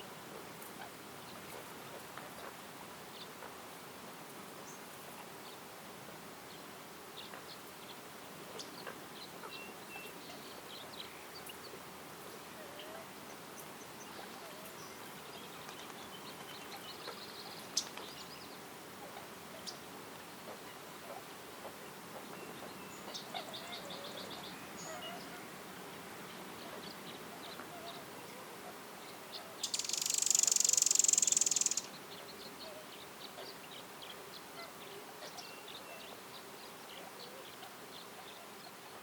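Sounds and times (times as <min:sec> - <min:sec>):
high bird chirps and calls: 0:29.3 - 0:32.8.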